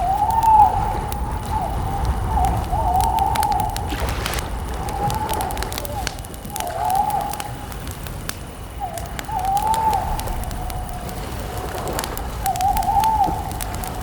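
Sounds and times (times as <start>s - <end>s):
campfire crackling and popping: 0.0s - 14.0s
bird calling in gliding notes: 12.4s - 14.0s.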